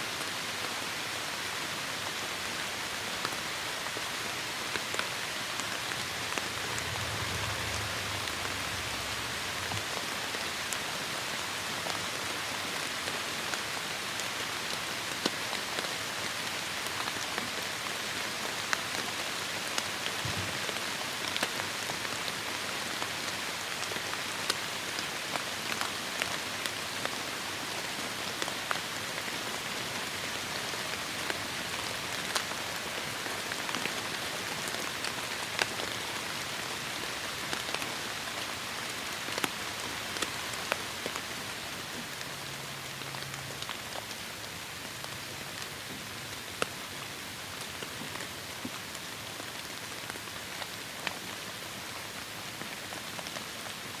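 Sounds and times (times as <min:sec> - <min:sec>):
heavy rain falling: 0:00.1 - 0:54.0
soft low rumble: 0:05.6 - 0:10.6.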